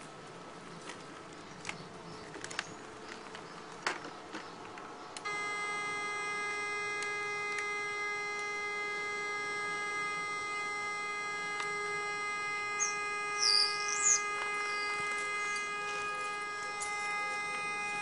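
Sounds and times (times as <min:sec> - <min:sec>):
pipe locator buzzing tone: 0:05.1 - 0:18.0.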